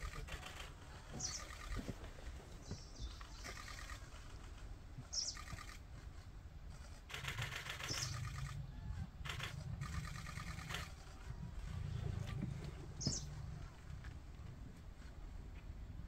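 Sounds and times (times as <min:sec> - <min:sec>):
birds chirping: 0:00.0 - 0:06.0, 0:07.2 - 0:14.0
low rumble: 0:06.7 - 0:16.0.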